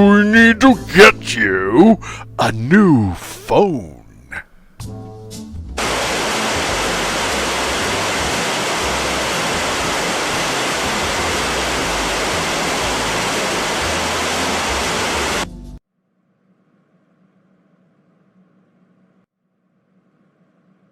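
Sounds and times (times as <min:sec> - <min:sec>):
static hiss: 0:05.8 - 0:15.5.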